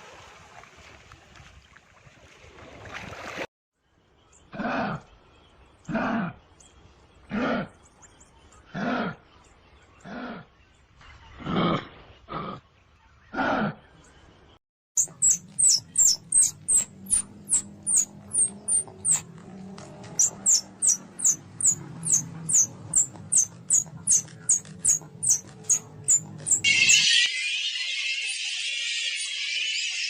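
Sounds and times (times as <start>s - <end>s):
small animal chirping: 15.0s - 19.3s, 20.2s - 27.0s.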